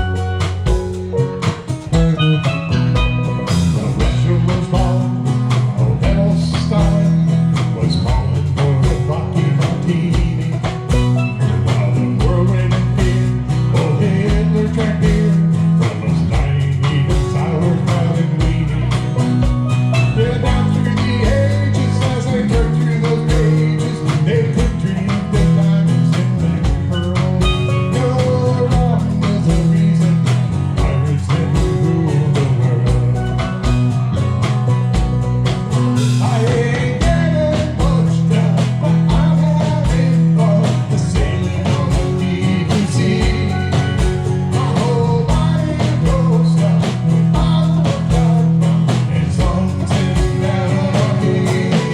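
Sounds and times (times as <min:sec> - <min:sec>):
drum kit beat: 0:00.0 - 0:51.9
live country band: 0:00.0 - 0:51.9.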